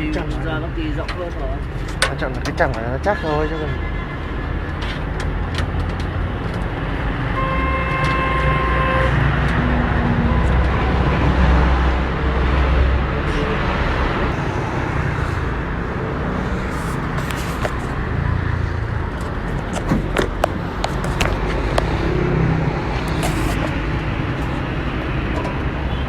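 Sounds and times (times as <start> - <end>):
traffic engine rumble: 0.0 - 26.0
vehicle horn: 3.1 - 4.6, 7.3 - 11.5, 25.8 - 26.0.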